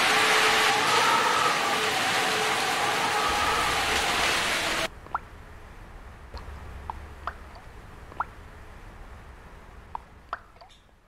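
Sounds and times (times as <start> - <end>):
loud steady rushing noise: 0.0 - 9.9
faint low hum: 2.4 - 11.0.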